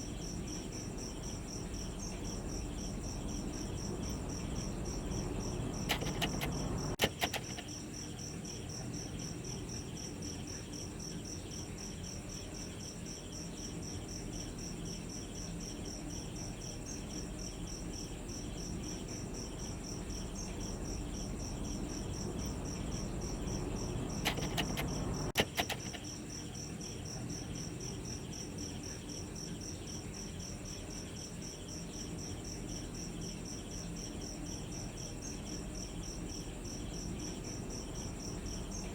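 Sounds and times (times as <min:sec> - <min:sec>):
crickets chirping: 0:00.0 - 0:38.9
sharp clicks: 0:05.1 - 0:07.7, 0:21.7 - 0:26.1.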